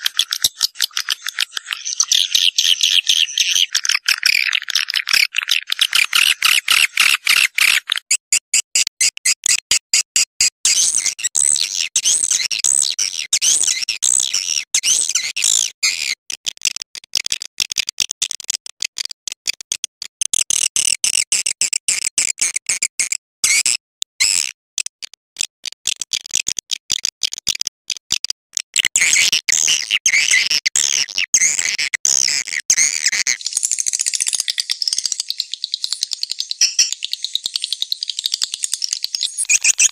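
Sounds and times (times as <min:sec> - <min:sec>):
swiftlets twittering and clicking: 0:33.4 - 0:39.9.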